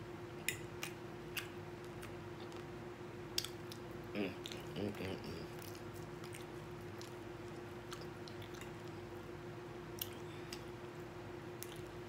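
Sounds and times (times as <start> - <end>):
steady low hum: 0.0 - 12.0
person chewing food: 0.4 - 11.0, 11.6 - 12.0
soft mouth clicks: 10.0 - 10.7.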